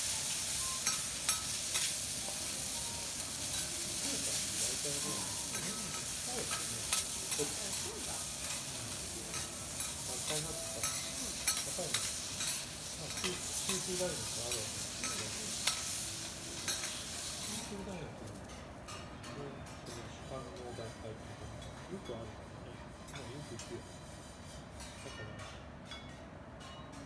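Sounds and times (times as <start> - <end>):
vegetables sizzling on a griddle: 0.0 - 19.0
metal spatulas scraping and tapping: 0.8 - 2.5, 3.5 - 17.7, 18.4 - 22.3, 23.0 - 27.0.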